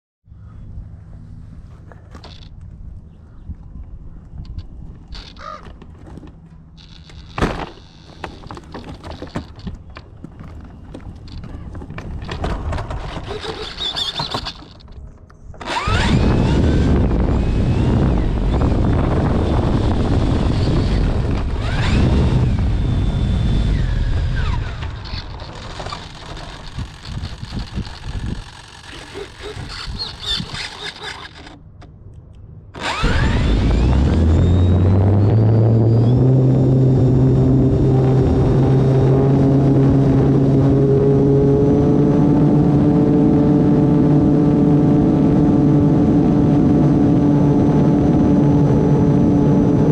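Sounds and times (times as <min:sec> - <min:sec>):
crows cawing: 0:05.2 - 0:05.8
wind buffeting microphone: 0:09.2 - 0:49.9
steady low rumble: 0:16.1 - 0:28.7, 0:31.6 - 0:49.9
gliding whistles: 0:28.9 - 0:31.5.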